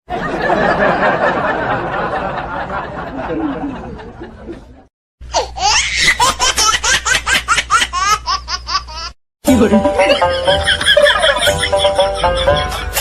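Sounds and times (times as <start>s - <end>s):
person laughing hard: 9.9s - 13.0s.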